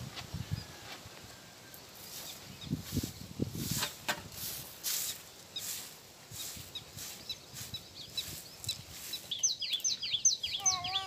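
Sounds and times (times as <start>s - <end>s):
birds chirping: 1.6s - 3.4s, 4.8s - 11.0s
bird sharp repeated chirps: 6.4s - 11.0s.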